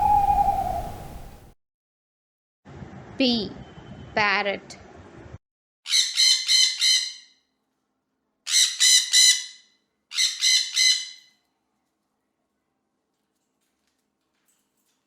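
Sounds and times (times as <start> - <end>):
parrot squawking: 8.5 - 11.2.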